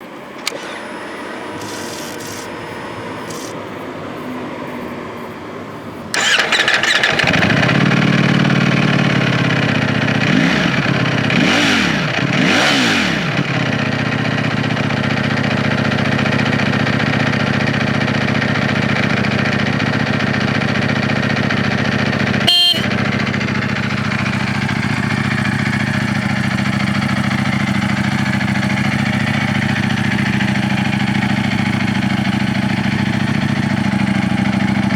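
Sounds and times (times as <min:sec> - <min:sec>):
sharp click: 0:00.3 - 0:03.6
motorcycle throttle blips: 0:06.1 - 0:14.3, 0:20.6 - 0:34.9
motorcycle engine idling: 0:06.1 - 0:34.9.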